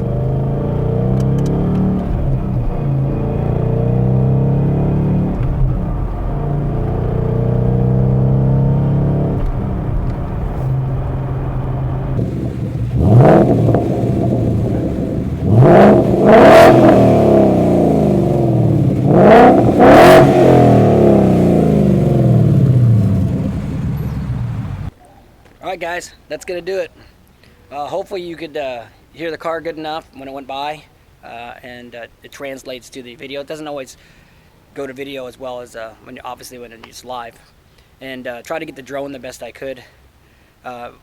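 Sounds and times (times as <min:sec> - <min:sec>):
car engine revving: 0:00.0 - 0:24.9
exhaust drone: 0:00.0 - 0:24.9.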